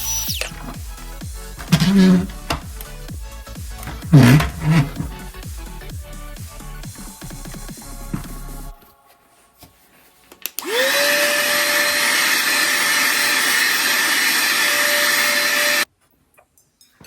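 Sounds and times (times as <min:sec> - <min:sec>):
electric fan motor whining: 0:10.6 - 0:15.8.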